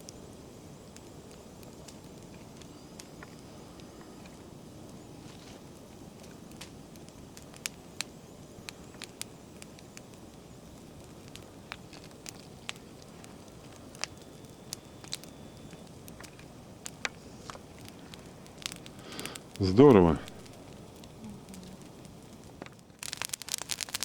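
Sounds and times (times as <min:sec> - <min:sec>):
campfire crackling: 0:00.0 - 0:24.0.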